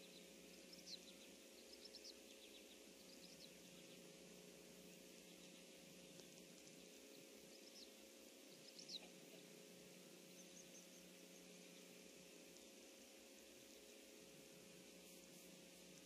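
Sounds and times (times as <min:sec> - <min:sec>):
faint high bird chirps: 0:00.0 - 0:04.2, 0:04.9 - 0:09.5, 0:10.2 - 0:13.0
faint low hum: 0:00.0 - 0:16.0
steady hiss: 0:00.0 - 0:16.0.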